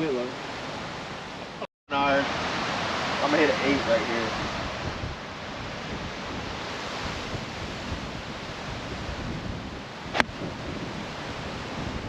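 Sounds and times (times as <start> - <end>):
wind buffeting microphone: 2.3 - 12.0
golf club striking ball: 10.1 - 10.4.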